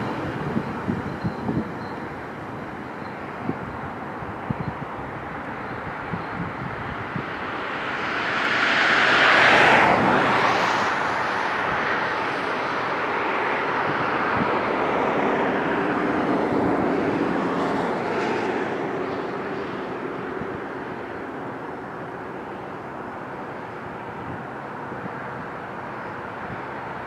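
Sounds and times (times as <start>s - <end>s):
train wheels rumbling on rails: 0.0s - 8.4s
diesel locomotive engine drone: 0.0s - 27.0s.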